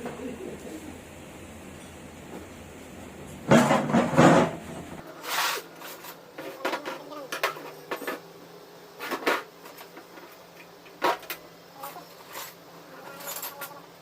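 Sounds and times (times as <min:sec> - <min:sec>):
hand tools and metal parts clicking: 0:05.2 - 0:08.4, 0:09.0 - 0:14.0.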